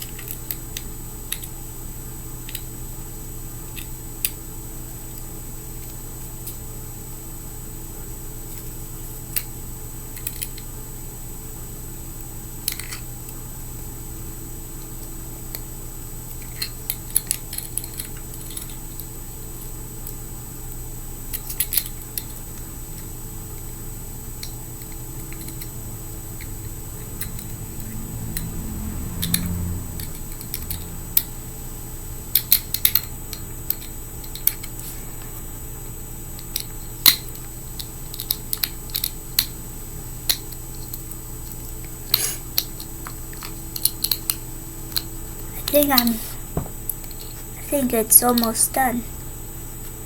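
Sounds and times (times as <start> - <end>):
low hum: 22.3 - 49.3.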